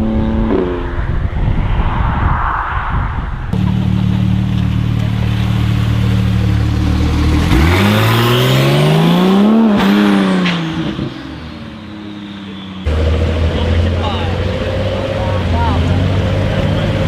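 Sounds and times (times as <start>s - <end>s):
car engine revving: 2.9s - 17.0s.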